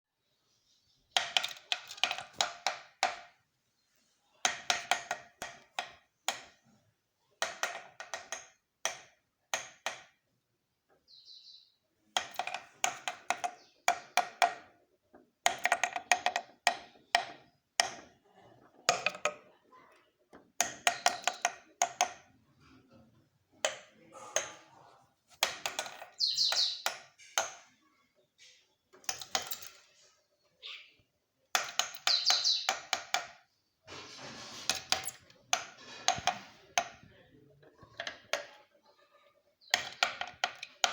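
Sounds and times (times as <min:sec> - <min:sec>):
woodpecker pecking: 0:04.4 - 0:06.6, 0:07.4 - 0:10.2, 0:12.1 - 0:22.8, 0:23.5 - 0:27.8, 0:31.5 - 0:33.5, 0:39.6 - 0:40.9.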